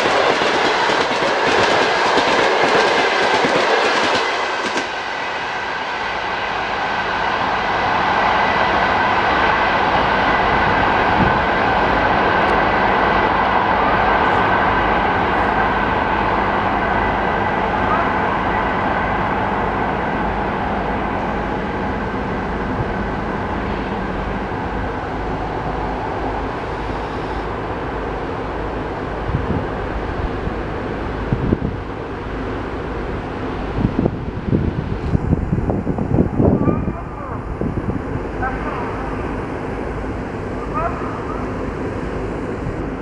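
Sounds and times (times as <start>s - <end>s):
train coaches rumbling on rails: 0.0s - 43.0s.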